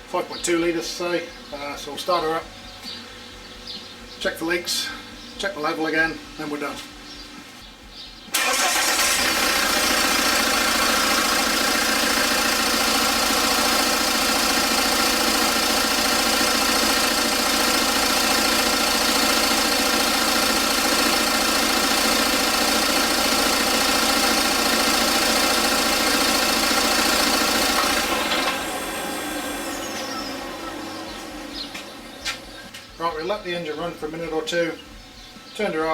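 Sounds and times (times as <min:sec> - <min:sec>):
diesel engine starting and idling: 0:08.3 - 0:34.2.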